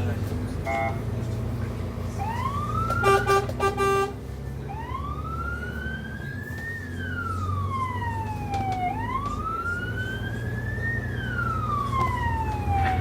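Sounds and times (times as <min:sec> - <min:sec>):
diesel engine drone: 0:00.0 - 0:13.0
fire engine siren wailing: 0:02.1 - 0:13.0
short horn blasts: 0:03.0 - 0:04.2.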